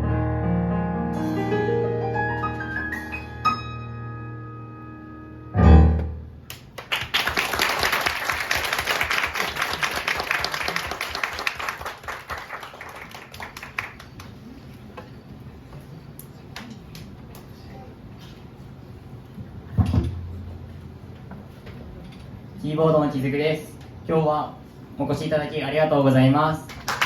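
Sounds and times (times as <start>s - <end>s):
audience applause: 6.5s - 14.6s, 26.7s - 27.0s.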